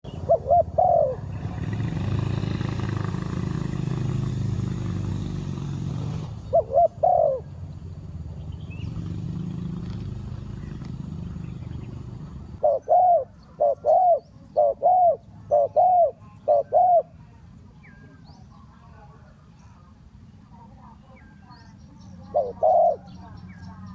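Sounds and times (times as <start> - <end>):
dove cooing: 0.0 - 8.0, 8.9 - 18.0, 22.2 - 23.9.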